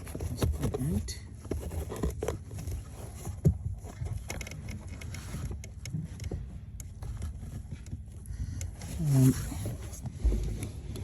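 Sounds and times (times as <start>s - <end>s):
low steady rumble: 0.0s - 11.0s
plastic clicks and scrapes: 0.0s - 11.0s.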